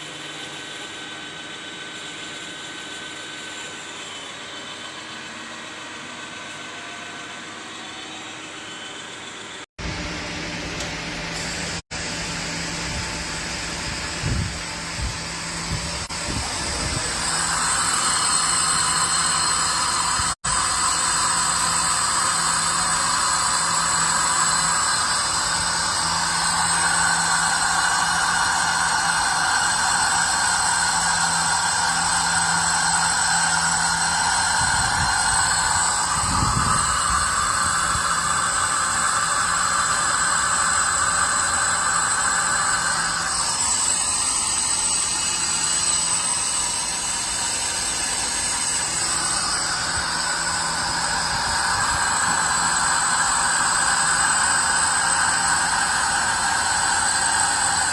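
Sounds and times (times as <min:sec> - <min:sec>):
milling machine hiss and hum: 0:00.0 - 0:57.9.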